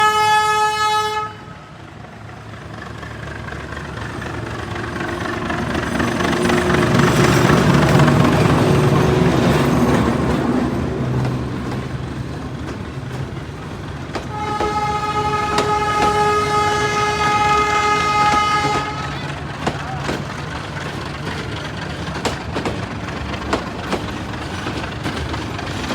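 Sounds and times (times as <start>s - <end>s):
train horn blast: 0.0s - 1.8s, 14.2s - 19.7s
train passing: 0.0s - 25.9s.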